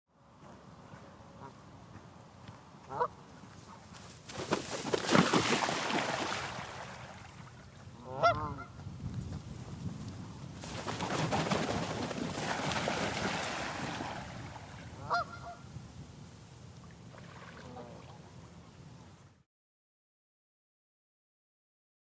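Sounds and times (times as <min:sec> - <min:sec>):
goose honking: 0:02.9 - 0:03.1, 0:08.0 - 0:08.8, 0:15.0 - 0:15.6
wingbeats and splashing: 0:04.3 - 0:07.6, 0:10.6 - 0:15.6.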